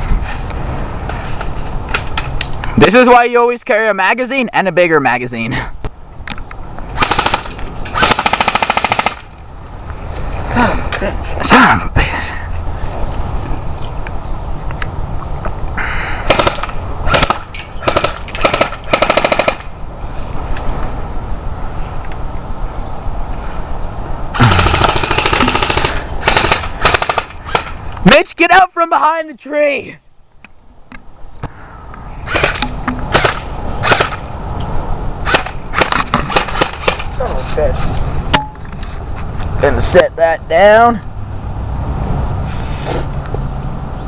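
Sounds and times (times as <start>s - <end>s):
airsoft rifle full-auto bursts: 7.0s - 9.3s, 16.3s - 19.6s, 24.4s - 27.7s, 32.3s - 34.2s.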